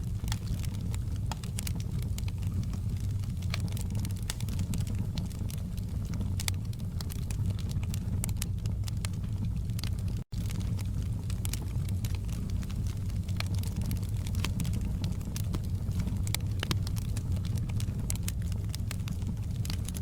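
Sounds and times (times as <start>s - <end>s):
low fire rumble: 0.0s - 20.0s
wood logs crackling in fireplace: 0.0s - 20.0s.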